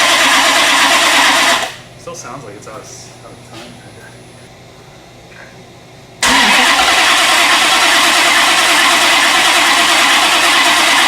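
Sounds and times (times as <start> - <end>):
engine cranking on starter: 0.0 - 1.8, 6.2 - 11.0.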